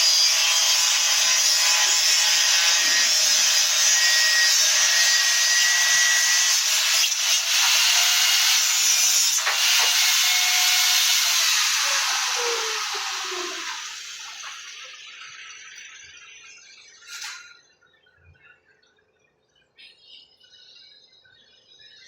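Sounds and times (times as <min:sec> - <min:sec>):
power tool cutting wood: 0:00.0 - 0:15.4.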